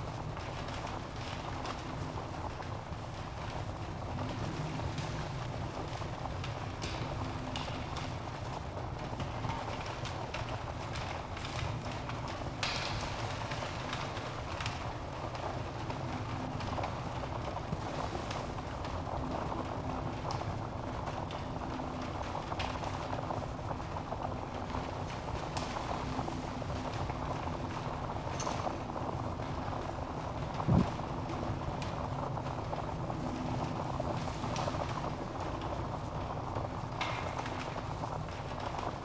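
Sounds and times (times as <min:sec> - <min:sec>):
burning logs crackling: 0:00.0 - 0:39.0
low rush of flames: 0:00.0 - 0:39.0
loud fire pop: 0:30.7 - 0:31.0.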